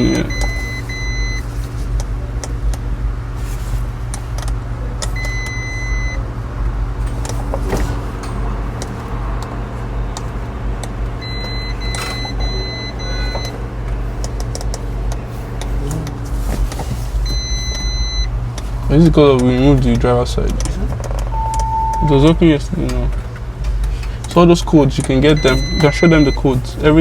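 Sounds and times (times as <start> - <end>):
car warning chime beeping: 0.0 - 1.5, 5.2 - 6.3, 11.2 - 13.6, 17.2 - 18.4, 21.3 - 22.3, 25.2 - 26.6
steady low hum: 0.0 - 27.0.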